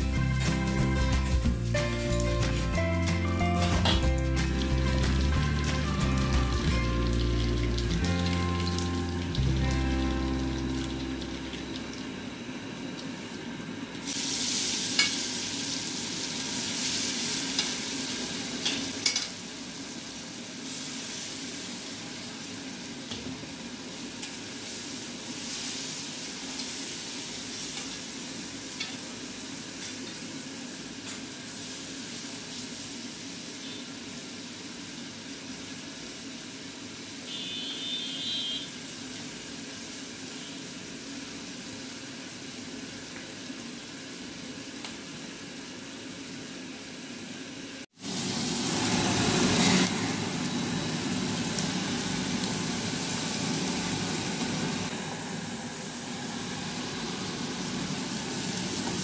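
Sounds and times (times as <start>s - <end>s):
fish frying in hot oil: 3.8s - 59.0s.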